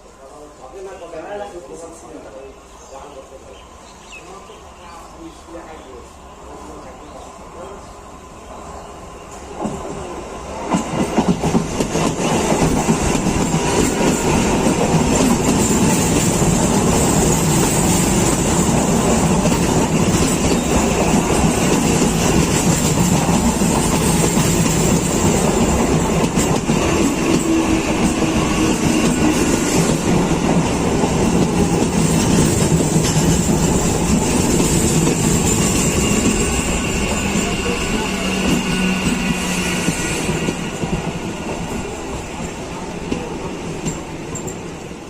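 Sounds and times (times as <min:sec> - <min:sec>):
train running on rails: 0:00.0 - 0:45.0.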